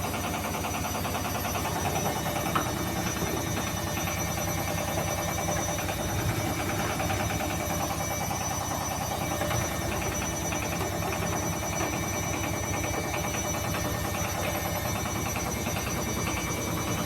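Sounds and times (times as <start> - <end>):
washing machine drum thumping: 1.1 - 15.0
washing machine cabinet rattling: 1.2 - 14.6.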